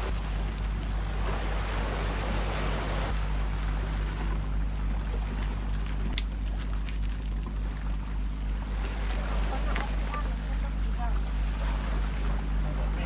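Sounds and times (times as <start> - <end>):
sea water: 0.0 - 13.0
wind: 0.0 - 13.0
wind rumble on microphone: 0.0 - 13.0.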